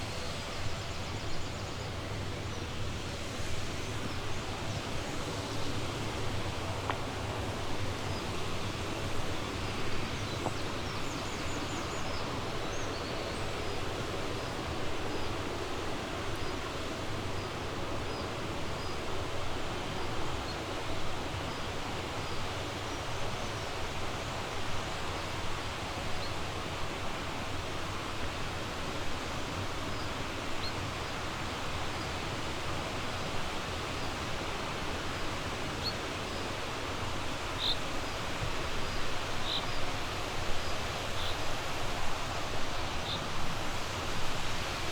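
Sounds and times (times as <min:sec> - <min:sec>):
river rushing: 0:26.6 - 0:44.9.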